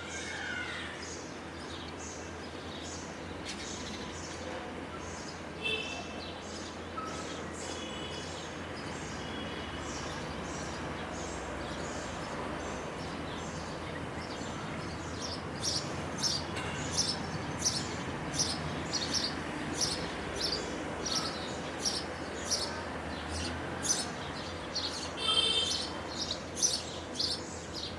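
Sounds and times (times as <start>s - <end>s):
sparrows chirping: 0.0s - 27.9s.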